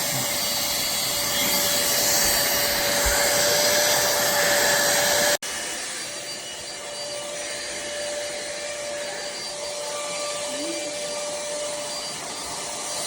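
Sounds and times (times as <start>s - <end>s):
handheld vacuum cleaner whine: 0.0s - 13.0s.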